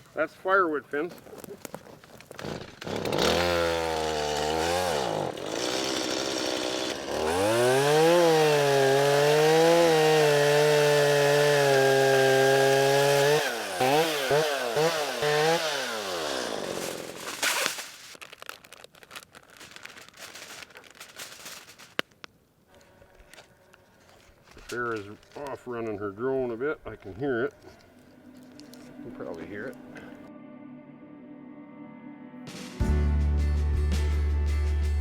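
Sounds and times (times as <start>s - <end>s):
chainsaw cutting a tree: 2.4s - 17.8s.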